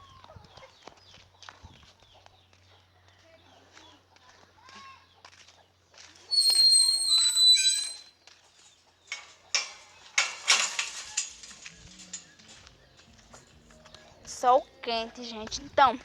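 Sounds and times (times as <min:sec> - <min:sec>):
gate clattering and knocking: 0:06.3 - 0:08.0, 0:09.1 - 0:12.7
gate hinge squealing: 0:06.3 - 0:08.1, 0:09.1 - 0:12.4.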